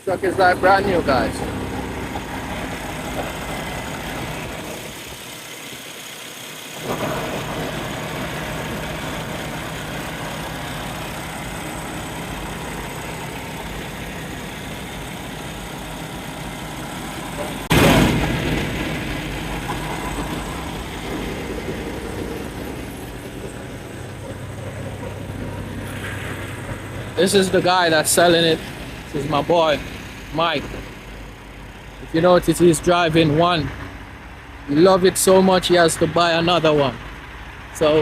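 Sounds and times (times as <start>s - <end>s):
diesel truck engine idling: 0.0s - 38.0s
sudden loud burst: 17.6s - 23.0s.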